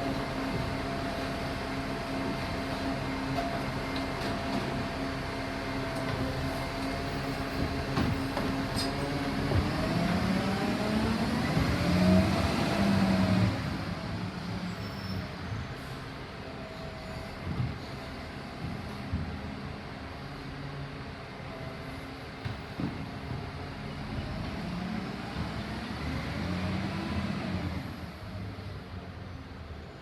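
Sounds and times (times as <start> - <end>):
diesel engine revving: 9.0 - 14.0, 24.1 - 28.1.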